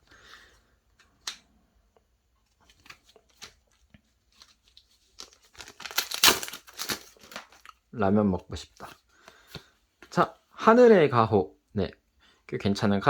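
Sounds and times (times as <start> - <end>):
wrapper rustling and tearing: 4.3 - 7.8.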